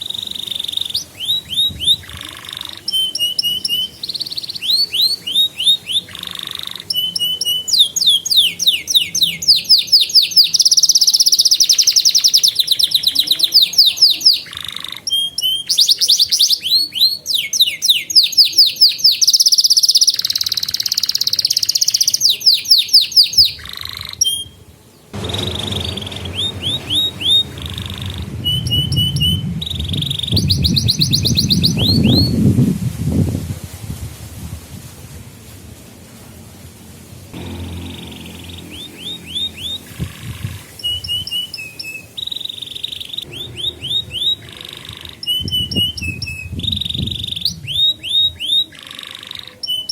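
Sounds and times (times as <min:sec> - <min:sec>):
canary singing trills: 0:00.0 - 0:32.5, 0:37.4 - 0:49.9
low rumble: 0:25.2 - 0:33.1, 0:37.1 - 0:41.3, 0:43.3 - 0:47.4.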